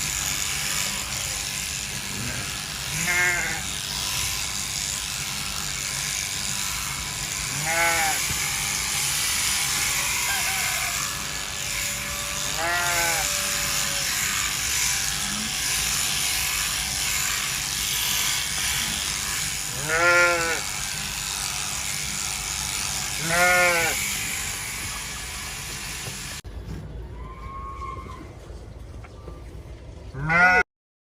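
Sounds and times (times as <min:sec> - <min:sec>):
electric clippers buzzing: 0:00.0 - 0:26.4
sheep bleating: 0:02.1 - 0:03.7, 0:07.5 - 0:08.3, 0:09.8 - 0:14.5, 0:19.7 - 0:20.7, 0:23.1 - 0:24.1, 0:30.2 - 0:30.6
faint animal call: 0:10.3 - 0:11.1.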